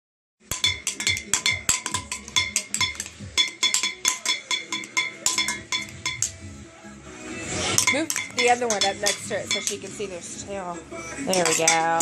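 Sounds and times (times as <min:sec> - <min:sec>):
metal pot being beaten: 0:00.4 - 0:06.4, 0:07.7 - 0:10.1, 0:11.2 - 0:12.0.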